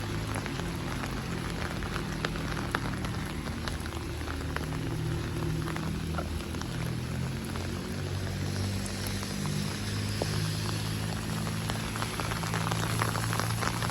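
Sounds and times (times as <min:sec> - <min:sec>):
close raindrops ticking: 0:00.0 - 0:13.9
steady rain falling: 0:00.0 - 0:13.9.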